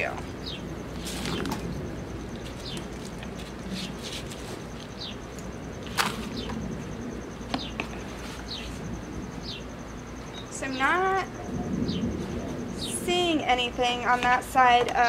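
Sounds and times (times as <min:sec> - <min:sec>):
bird chirping: 0:00.3 - 0:01.6, 0:02.2 - 0:04.0, 0:04.6 - 0:05.4, 0:06.2 - 0:06.7, 0:07.4 - 0:13.6
scraping of soil being dug: 0:02.5 - 0:04.9.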